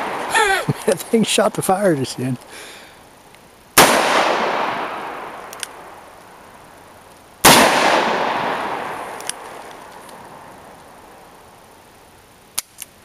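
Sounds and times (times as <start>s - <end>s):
gunshot with long echo: 0.0s - 0.4s, 3.8s - 5.5s, 7.4s - 9.5s.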